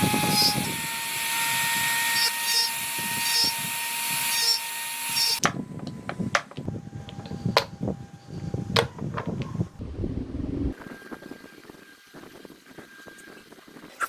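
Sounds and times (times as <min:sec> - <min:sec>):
power tool whining on wood: 0:00.0 - 0:09.2
taps and knocks on wood: 0:05.4 - 0:07.7, 0:08.8 - 0:09.4.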